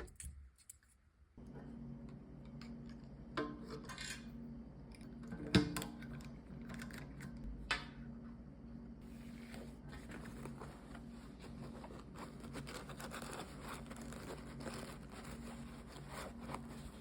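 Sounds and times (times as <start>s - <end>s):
steady low hum: 0.1s - 17.0s.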